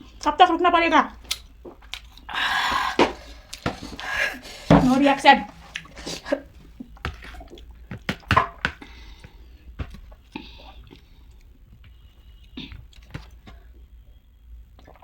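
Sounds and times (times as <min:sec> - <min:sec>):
hissy breaths or sniffs: 0:02.3 - 0:06.7.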